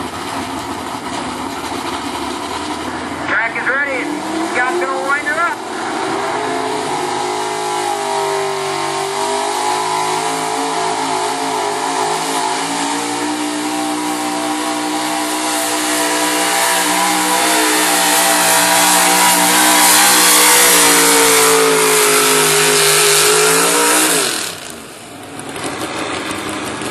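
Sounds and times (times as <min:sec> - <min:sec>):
truck engine at high revs: 0:00.0 - 0:26.9.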